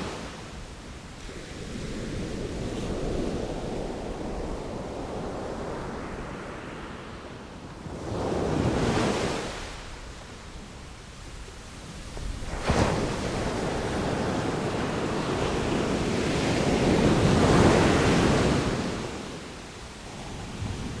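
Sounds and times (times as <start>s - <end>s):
sea waves washing: 11.7s - 21.0s.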